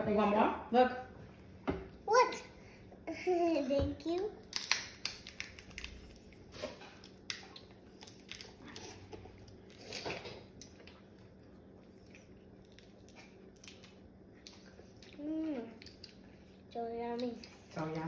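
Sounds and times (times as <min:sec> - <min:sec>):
crab crunching and chewing: 0:04.4 - 0:15.2.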